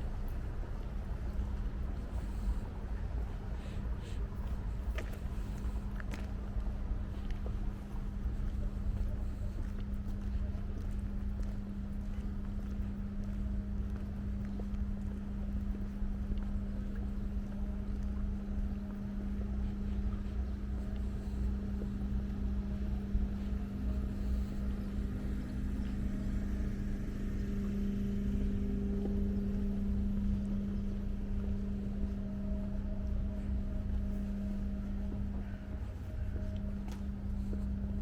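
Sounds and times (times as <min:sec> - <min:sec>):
engine running: 0:19.4 - 0:38.0.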